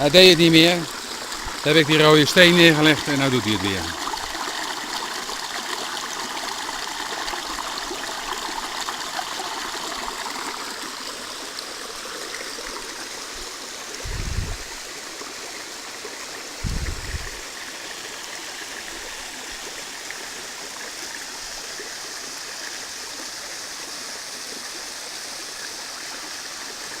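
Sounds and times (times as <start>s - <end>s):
waterfall rushing over rocks: 0.0s - 5.1s
dull low bumps: 14.0s - 14.8s, 16.6s - 17.4s.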